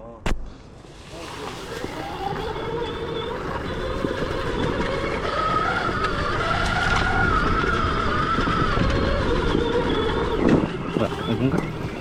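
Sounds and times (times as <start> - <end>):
wind: 0.0 - 12.0
electric motor whine: 1.3 - 12.0.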